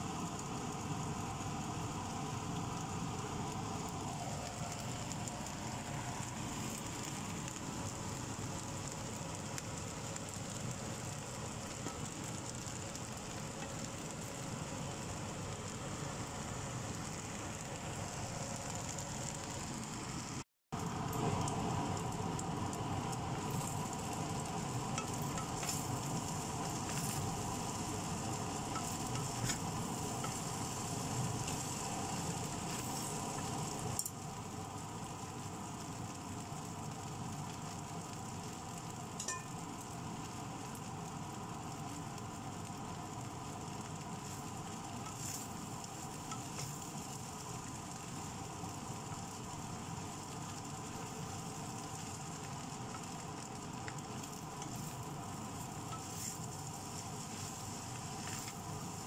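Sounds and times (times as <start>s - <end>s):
rice sizzling in a wok: 0.0s - 59.0s
spatula stirring: 23.4s - 33.8s, 44.2s - 47.5s, 54.2s - 59.0s.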